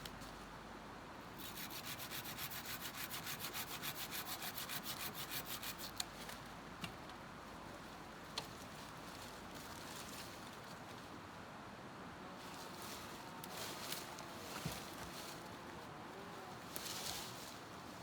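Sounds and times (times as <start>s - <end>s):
tool rasping against wood: 1.4s - 6.0s.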